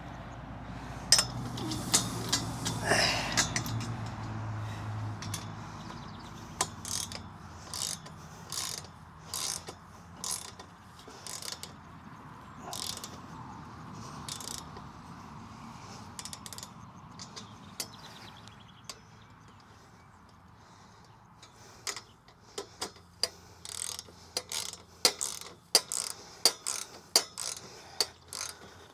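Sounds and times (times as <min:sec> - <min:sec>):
ratcheting socket wrench clicking: 0:01.1 - 0:11.8, 0:12.7 - 0:13.2, 0:14.3 - 0:14.8, 0:22.6 - 0:28.9.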